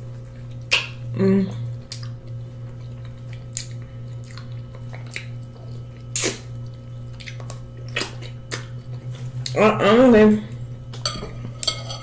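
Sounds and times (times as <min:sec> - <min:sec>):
low electrical hum: 0:00.0 - 0:12.0
wet chewing mouth smacks: 0:01.8 - 0:09.6.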